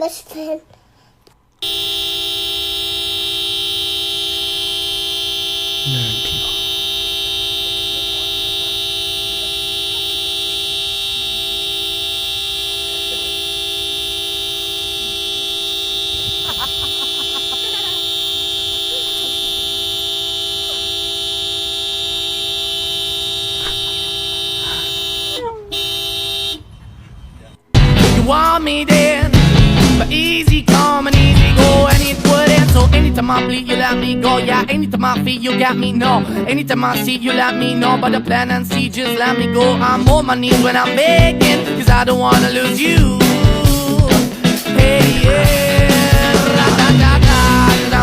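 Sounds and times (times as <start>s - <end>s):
steady horn-like tone: 1.6s - 26.8s.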